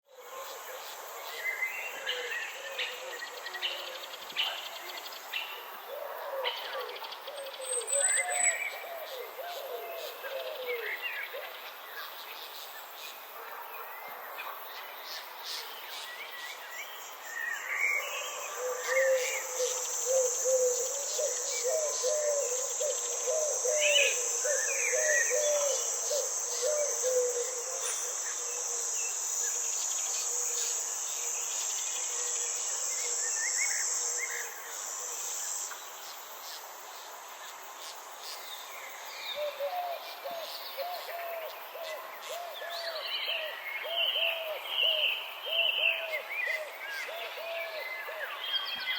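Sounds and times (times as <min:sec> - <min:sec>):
insects trilling: 0:14.4 - 0:48.9.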